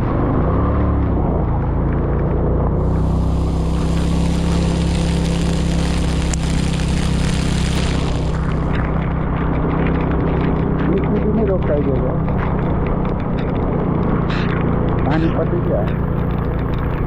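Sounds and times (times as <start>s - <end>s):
scooter engine running: 2.3s - 17.0s
loud hiss: 2.8s - 8.6s.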